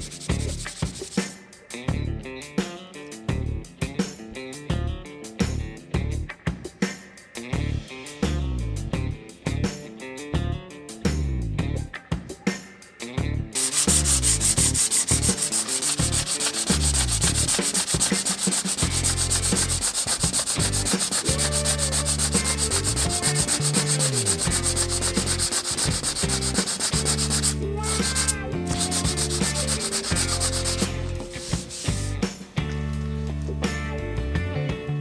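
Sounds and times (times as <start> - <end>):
sanding wood scratching: 0.0 - 1.3, 13.6 - 32.2.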